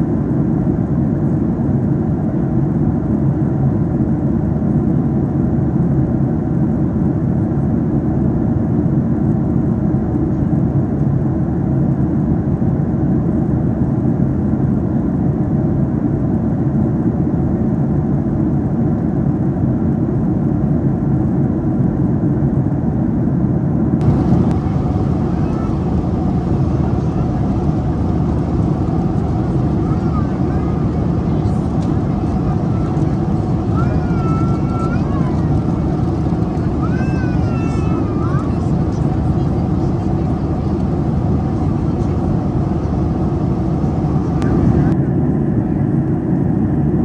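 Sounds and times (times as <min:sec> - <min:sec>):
airplane cabin drone: 0:24.0 - 0:45.0.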